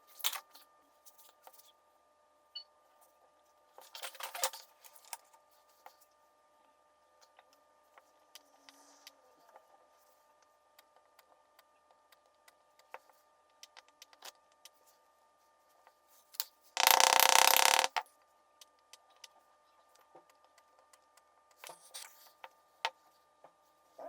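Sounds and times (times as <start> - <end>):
small electric motor running: 16.8 - 18.0.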